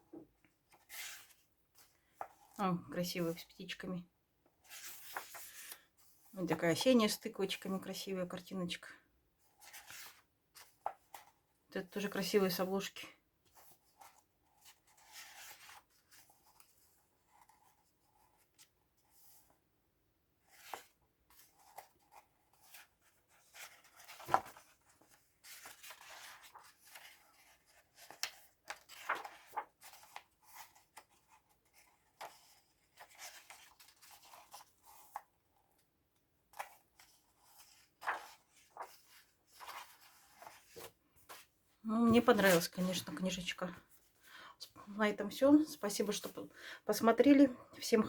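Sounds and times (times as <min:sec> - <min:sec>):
book pages rustling: 0:00.1 - 0:02.6, 0:04.5 - 0:06.9, 0:09.4 - 0:11.6, 0:13.4 - 0:19.6, 0:20.4 - 0:43.2.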